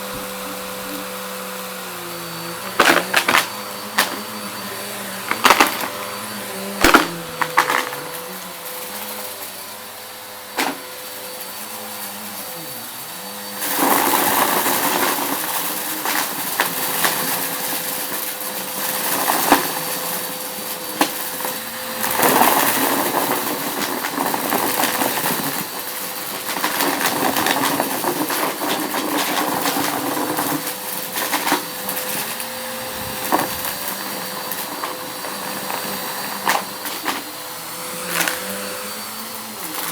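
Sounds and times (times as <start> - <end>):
vacuum cleaner on a rug: 0.0 - 39.9
debris rattling up nozzle: 2.7 - 4.5, 5.2 - 6.2, 6.8 - 8.4.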